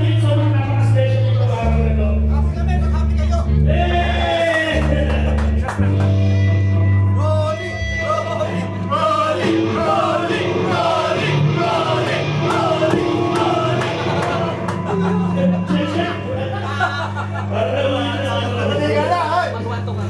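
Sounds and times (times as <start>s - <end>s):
held bass notes: 0.0s - 18.8s
person singing: 7.7s - 16.4s.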